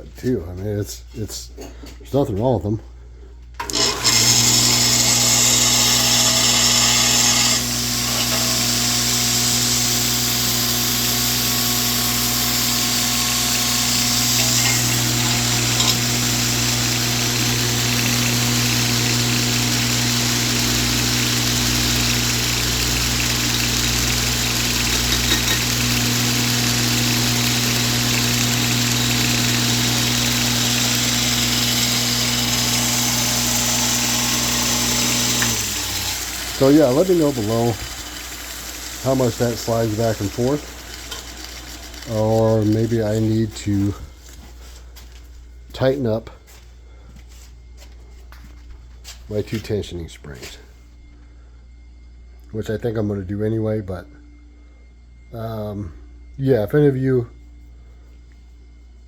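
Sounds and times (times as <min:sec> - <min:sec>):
belt grinder motor humming: 0:03.6 - 0:44.1.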